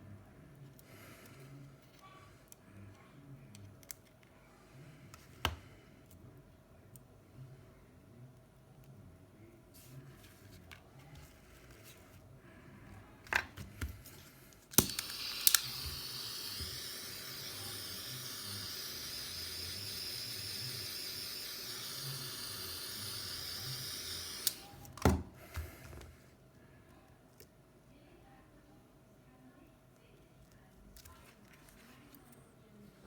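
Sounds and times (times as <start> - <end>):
hot-air tool hissing: 14.8 - 24.8.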